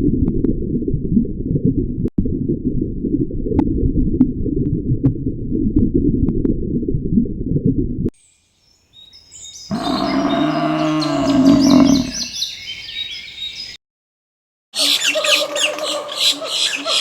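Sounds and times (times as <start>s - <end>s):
birds chirping: 8.7s - 13.8s, 14.8s - 17.0s
low drawn-out animal call: 9.7s - 12.4s.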